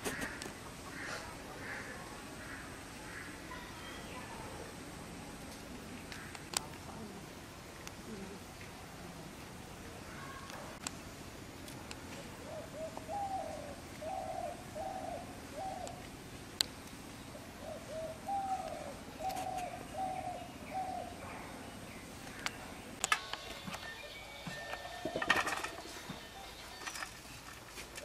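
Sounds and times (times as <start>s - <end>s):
bird cooing: 5.7s - 7.4s, 8.0s - 9.4s, 12.3s - 16.1s, 17.5s - 22.7s.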